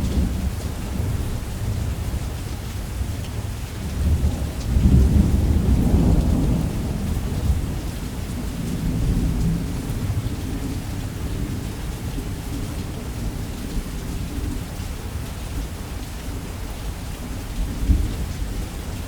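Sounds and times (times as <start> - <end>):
heavy rain: 0.0 - 19.0
thunder rumbling: 3.8 - 13.5.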